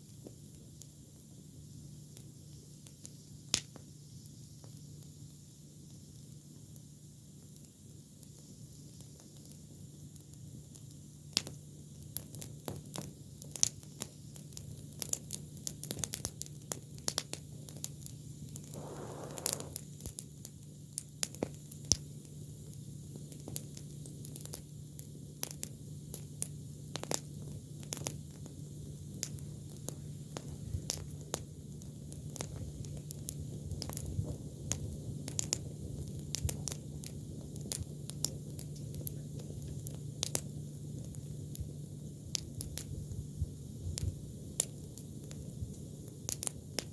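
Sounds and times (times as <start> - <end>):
campfire crackling and popping: 0.0 - 46.9
steady low hum: 18.6 - 19.9
brief hiss: 18.7 - 19.9.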